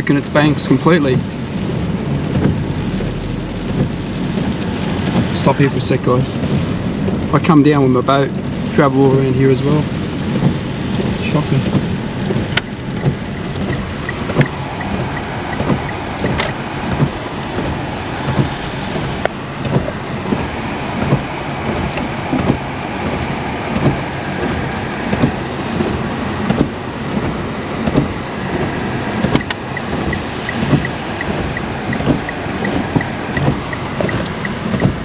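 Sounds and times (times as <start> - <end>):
river rushing: 12.2 - 35.0.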